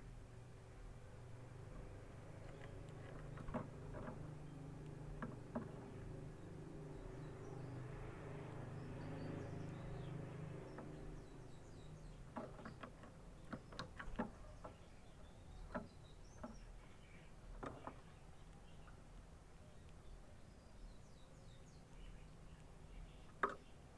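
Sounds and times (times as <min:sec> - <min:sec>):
canary chirping: 0:02.4 - 0:19.0.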